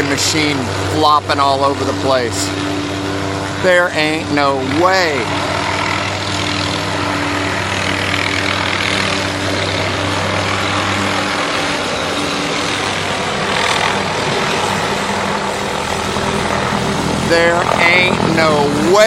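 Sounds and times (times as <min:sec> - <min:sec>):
helicopter rotor and engine drone: 0:00.0 - 0:19.0.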